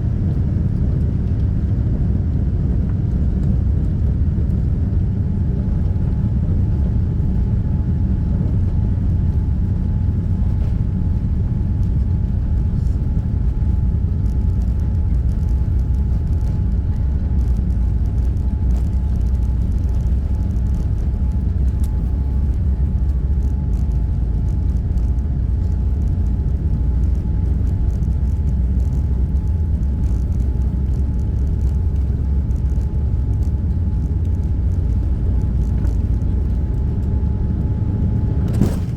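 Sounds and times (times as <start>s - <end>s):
jet engine cabin rumble: 0.0s - 38.9s
light ticks and rattles: 11.7s - 37.7s.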